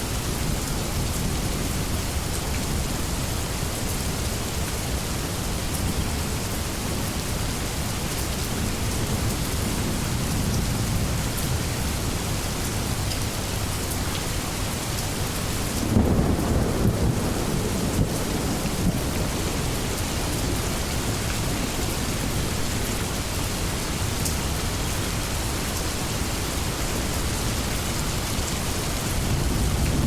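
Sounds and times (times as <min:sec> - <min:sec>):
rain falling on surfaces: 0:00.0 - 0:30.0
thunderclap and rumble: 0:15.8 - 0:21.5, 0:29.1 - 0:30.0.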